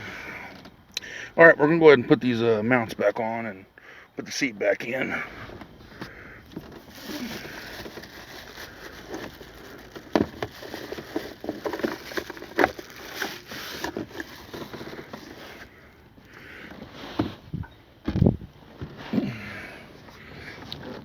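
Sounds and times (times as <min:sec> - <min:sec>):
rustling and handling noise: 0:05.3 - 0:19.4, 0:20.0 - 0:21.0.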